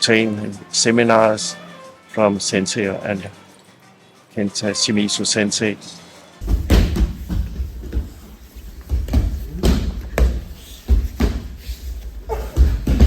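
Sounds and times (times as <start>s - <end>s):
bodies thudding on a mat: 6.4s - 13.0s.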